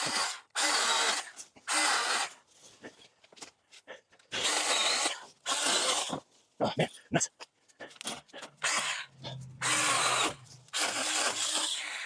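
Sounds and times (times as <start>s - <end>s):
mini chainsaw cutting brush: 8.1s - 12.0s.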